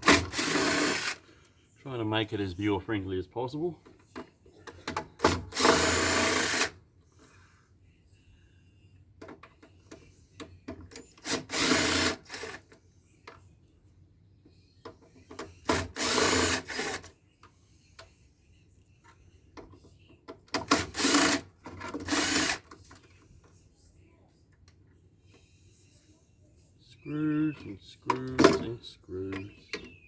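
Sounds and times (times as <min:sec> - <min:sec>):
cordless drill running: 0:00.0 - 0:01.2, 0:05.5 - 0:06.7, 0:11.3 - 0:12.6, 0:15.7 - 0:17.0, 0:20.8 - 0:21.4, 0:22.0 - 0:22.6.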